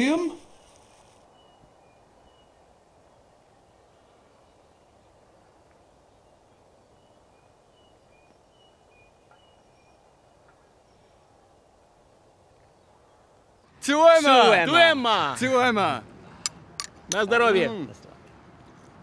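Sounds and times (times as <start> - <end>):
faint bird chirps: 0.3 - 13.4.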